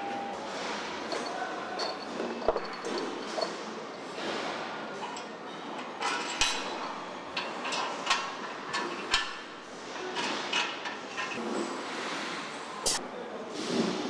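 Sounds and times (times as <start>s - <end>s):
factory background noise: 0.0s - 14.0s
metal knocks and clanks of tools: 1.1s - 3.6s.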